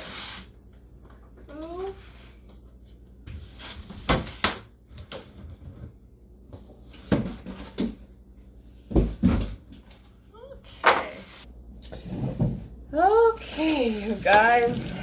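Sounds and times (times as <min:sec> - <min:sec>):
objects knocking and thumping: 0:06.6 - 0:08.1, 0:08.8 - 0:10.0, 0:12.0 - 0:12.8.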